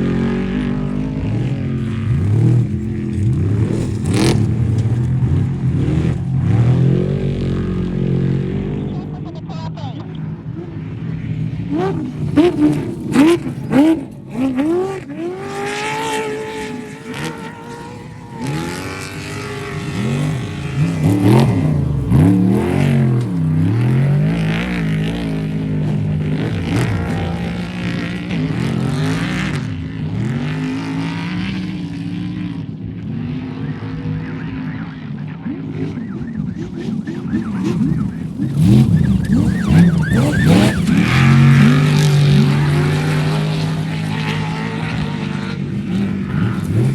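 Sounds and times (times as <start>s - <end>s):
race vehicle engines revving: 0.0s - 46.9s.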